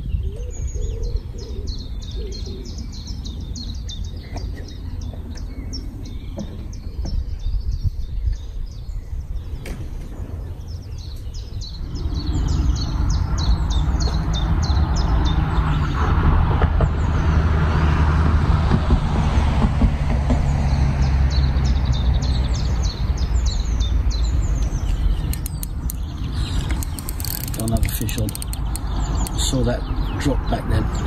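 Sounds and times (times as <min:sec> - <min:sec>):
songbird chirping: 0:20.5 - 0:31.0.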